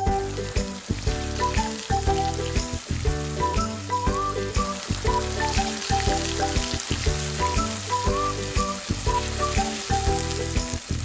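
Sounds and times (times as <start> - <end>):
background music: 0.0 - 11.0
food sizzling in a frying pan: 0.0 - 11.0.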